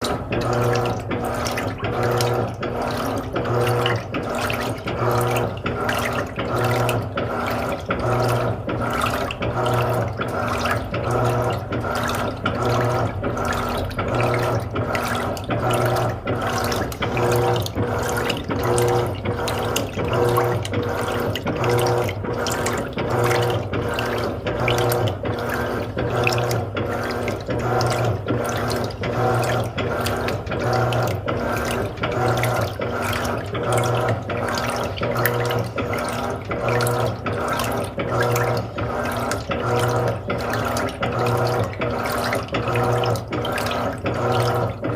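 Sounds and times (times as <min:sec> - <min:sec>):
washing machine motor hum: 0:00.0 - 0:44.9
water churning and sloshing: 0:00.0 - 0:44.9.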